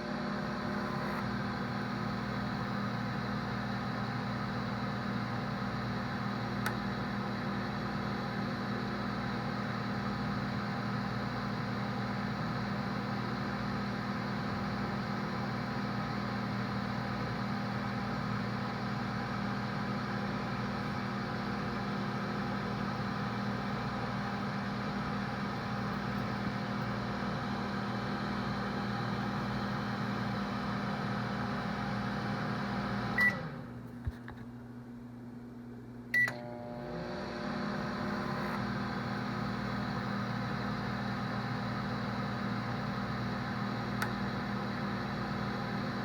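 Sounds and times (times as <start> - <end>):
microwave oven humming: 0.0 - 46.0
microwave beep: 0.2 - 33.6, 36.1 - 36.8.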